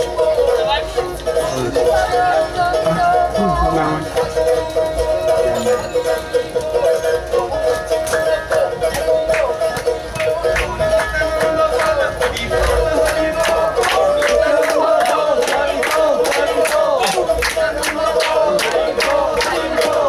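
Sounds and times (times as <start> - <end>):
droning folk melody: 0.0 - 20.0.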